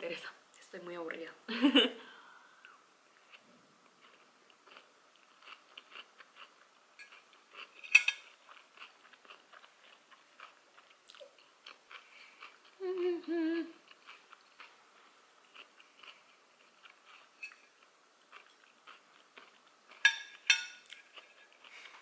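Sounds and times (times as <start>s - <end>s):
woman chewing food: 2.6s - 22.0s
woman humming: 12.8s - 13.9s.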